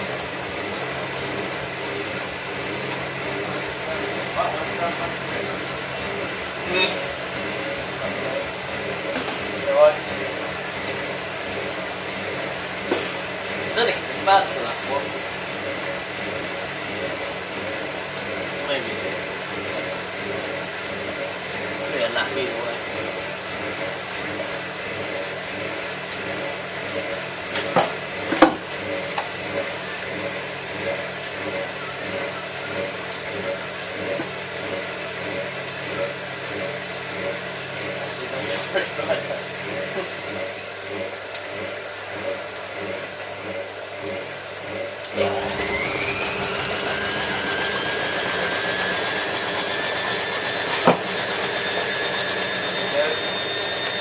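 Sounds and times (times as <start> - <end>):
washing machine running: 0.0 - 54.0
washing machine drum spinning: 43.6 - 54.0.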